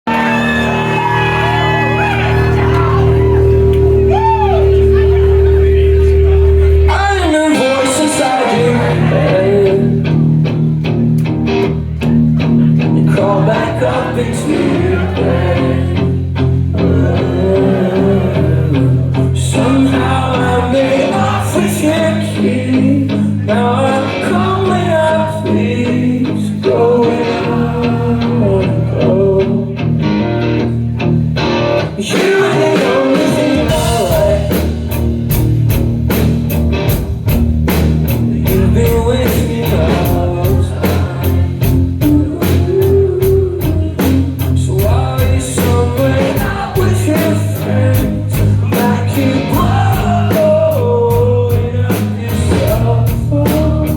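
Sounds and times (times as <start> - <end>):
rock band playing live: 0.0 - 53.9
person singing: 6.2 - 10.2, 12.7 - 30.2, 31.9 - 35.0, 38.1 - 53.9.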